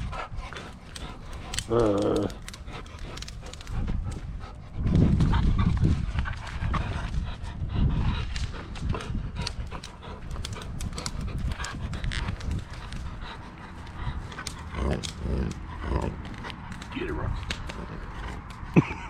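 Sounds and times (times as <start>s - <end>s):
dog panting: 0.0s - 19.0s
light clicks: 0.4s - 4.3s, 8.3s - 19.0s.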